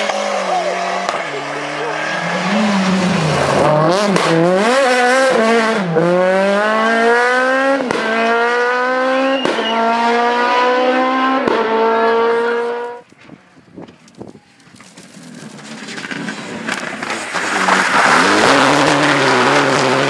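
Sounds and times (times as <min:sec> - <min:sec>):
rally car engine revving: 0:00.0 - 0:13.0, 0:15.0 - 0:20.0.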